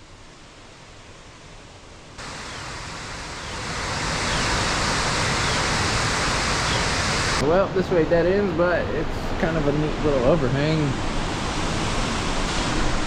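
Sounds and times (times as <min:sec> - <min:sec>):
waterfall rushing: 0:02.2 - 0:08.6, 0:09.5 - 0:13.0.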